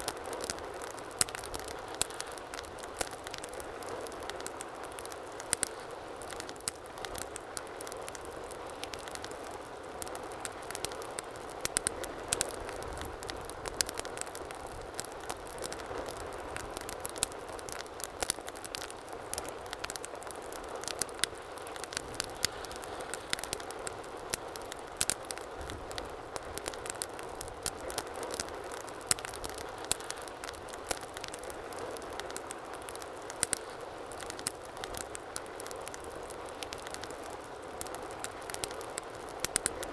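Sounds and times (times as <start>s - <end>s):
wood fire crackling and popping: 0.0s - 39.9s
soft rush of flame: 18.5s - 35.1s.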